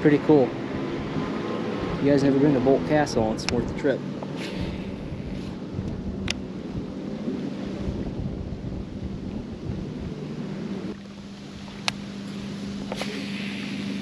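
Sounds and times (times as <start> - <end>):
wind buffeting microphone: 0.0 - 12.1
boat motor humming: 0.0 - 14.0.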